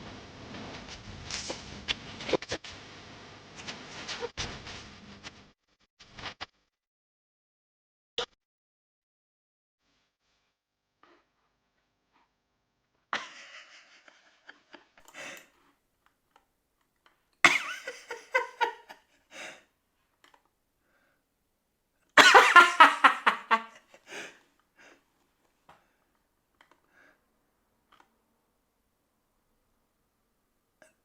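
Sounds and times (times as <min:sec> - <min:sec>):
person laughing: 0:17.5 - 0:19.0, 0:22.2 - 0:23.8.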